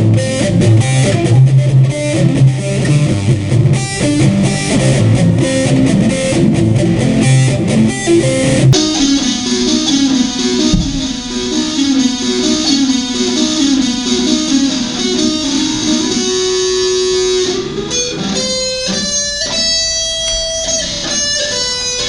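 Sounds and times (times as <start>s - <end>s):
electric guitar solo: 0.0s - 22.0s.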